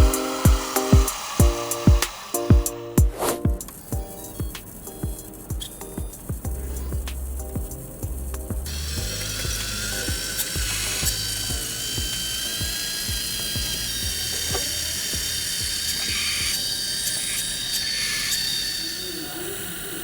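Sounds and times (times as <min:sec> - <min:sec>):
background music with steady beat: 0:00.0 - 0:16.6
electric motors whining: 0:00.0 - 0:20.0.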